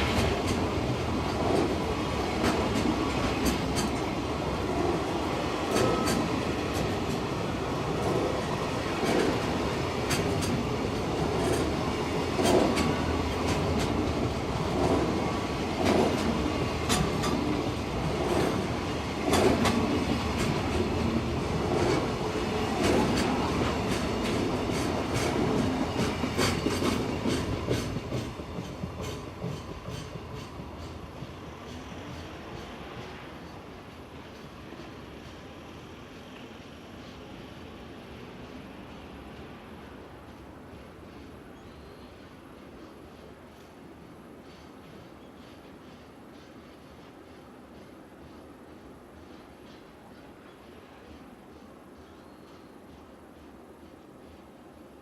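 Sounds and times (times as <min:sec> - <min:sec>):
wheels clacking over rail joints: 0:00.0 - 0:35.4
freight train rumbling past: 0:00.0 - 0:55.0.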